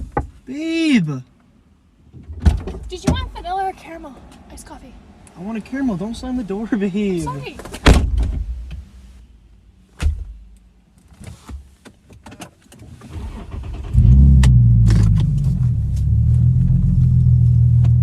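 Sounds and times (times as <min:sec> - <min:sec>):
thud inside car: 0:07.7 - 0:08.8, 0:10.0 - 0:10.4
car engine starting and running: 0:12.7 - 0:18.0.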